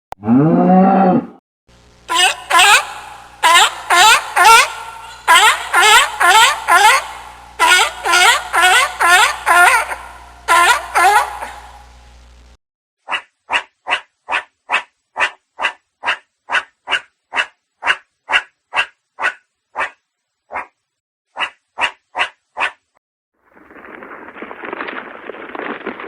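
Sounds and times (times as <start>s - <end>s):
animal making short calls: 2.1s - 11.7s.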